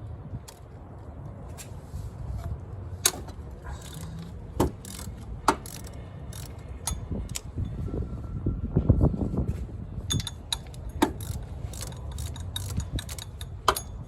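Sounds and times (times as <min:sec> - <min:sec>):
ratchet clicking on bolt: 0:03.0 - 0:07.5, 0:10.1 - 0:14.0
metal clinks: 0:03.1 - 0:07.8, 0:10.1 - 0:14.0.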